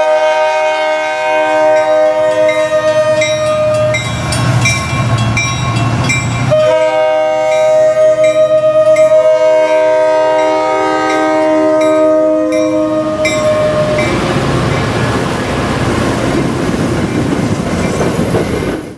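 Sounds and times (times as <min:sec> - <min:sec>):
locomotive air horn chord: 0:00.0 - 0:04.1, 0:06.5 - 0:14.9
train passing on rails: 0:00.0 - 0:18.9.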